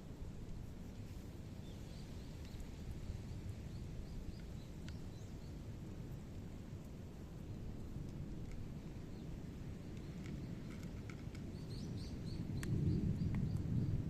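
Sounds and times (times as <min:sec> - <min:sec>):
faint clicks: 0:04.4 - 0:05.0.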